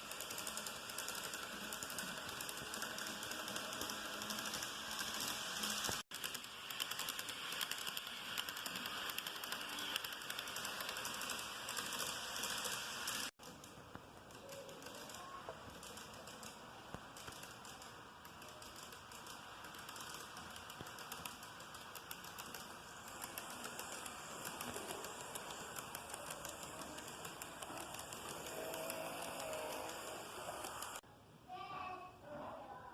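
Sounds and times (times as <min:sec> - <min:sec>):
model train clicking rattle: 0:00.0 - 0:31.0.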